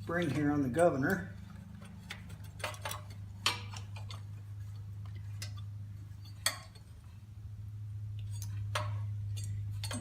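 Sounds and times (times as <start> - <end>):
steady low hum: 0.0 - 10.0
metal clicks and clinks: 0.2 - 7.0, 8.2 - 10.0.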